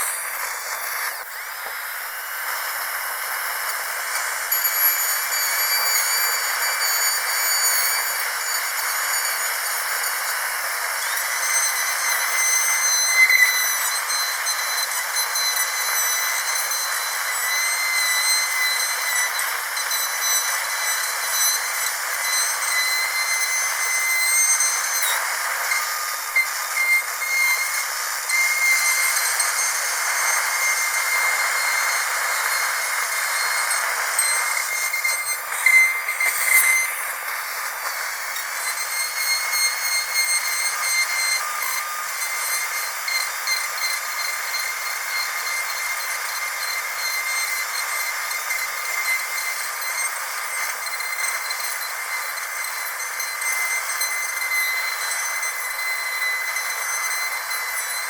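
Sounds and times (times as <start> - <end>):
dentist's drill whining: 0.0 - 58.0.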